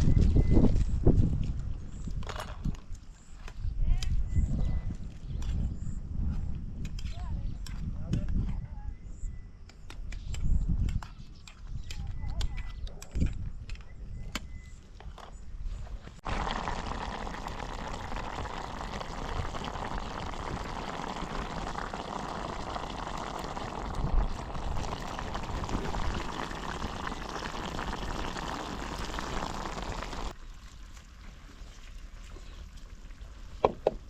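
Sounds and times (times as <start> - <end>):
water rushing and bubbling: 16.2 - 33.6.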